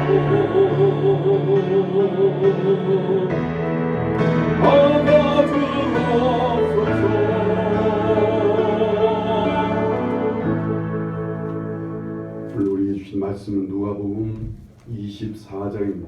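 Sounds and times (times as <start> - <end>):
person singing with vibrato: 0.0 - 11.4
held accompanying chords: 0.0 - 14.8.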